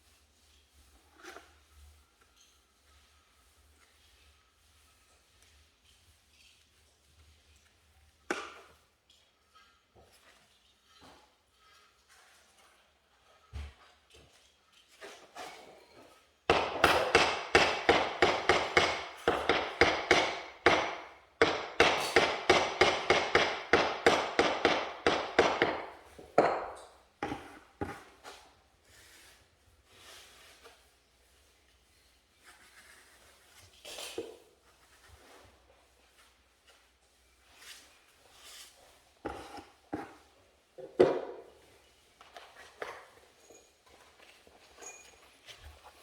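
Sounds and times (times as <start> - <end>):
knocks: 16.5 - 26.7
rapid hammering: 16.5 - 27.4.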